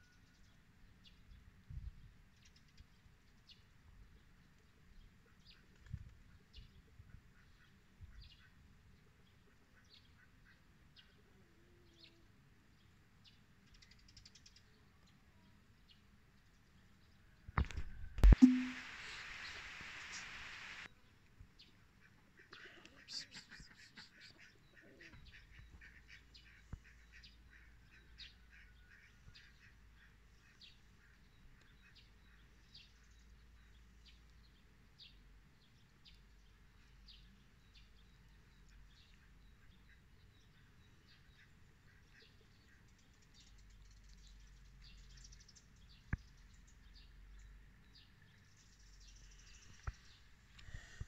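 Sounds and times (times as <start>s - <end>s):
faint birds chirping: 0.0s - 51.0s
sharp click: 17.6s - 18.9s.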